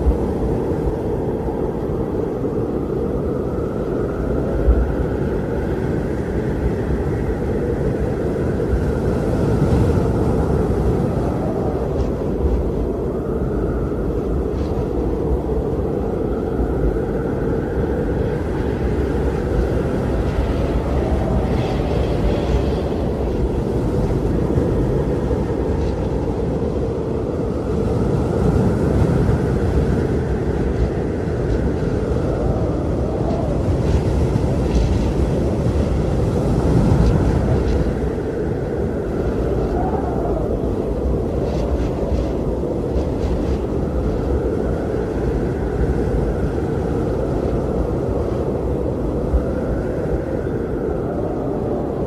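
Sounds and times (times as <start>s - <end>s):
strong wind blowing: 0.0s - 52.0s.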